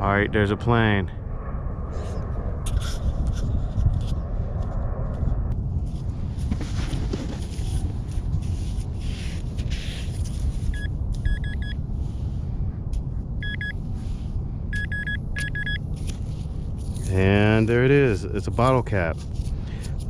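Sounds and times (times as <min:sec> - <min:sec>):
low rumble: 0:00.0 - 0:20.0
metal detector beeping: 0:10.7 - 0:11.8, 0:13.4 - 0:13.8, 0:14.7 - 0:15.9.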